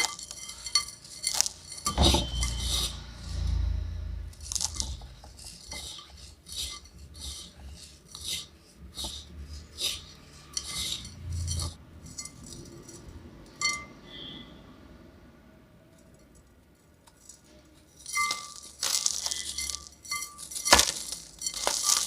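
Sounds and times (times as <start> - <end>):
sharp ringing clink: 0.0 - 3.1, 13.6 - 14.4
grainy material scraping in clay pot: 0.0 - 13.2, 17.2 - 22.0.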